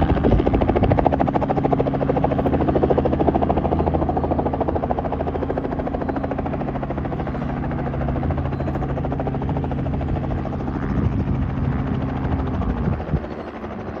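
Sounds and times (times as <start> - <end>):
helicopter rotor beat: 0.0 - 14.0.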